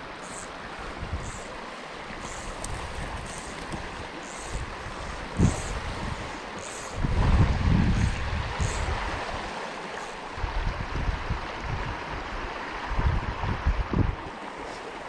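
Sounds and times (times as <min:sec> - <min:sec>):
stream water running: 0:00.0 - 0:15.0
wind buffeting microphone: 0:00.8 - 0:01.5, 0:02.2 - 0:09.3, 0:10.3 - 0:14.3.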